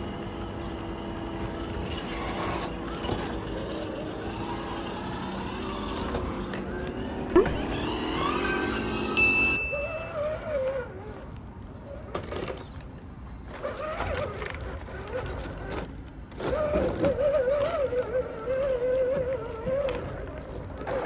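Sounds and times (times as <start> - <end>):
electric motor whining: 0.2 - 11.2.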